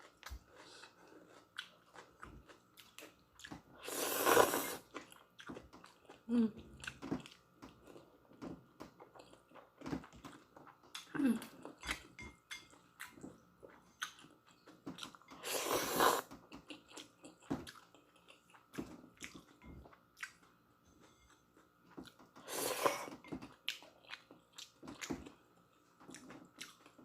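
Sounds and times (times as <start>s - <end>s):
chewing noodles: 0.0s - 8.1s, 21.0s - 27.0s
slurping: 3.8s - 4.9s, 15.4s - 16.3s.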